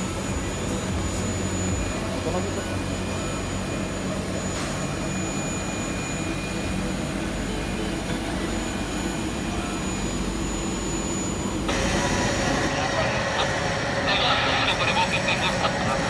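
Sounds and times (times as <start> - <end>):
high constant whine: 0.0 - 16.0
jet engines rumbling: 0.0 - 16.0.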